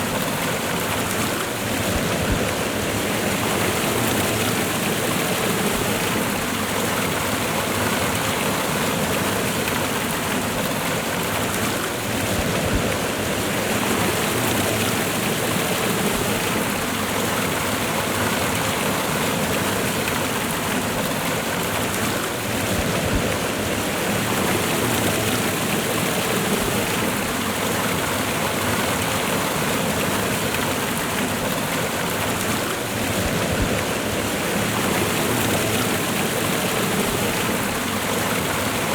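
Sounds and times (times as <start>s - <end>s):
waterfall and river rushing: 0.0s - 38.9s.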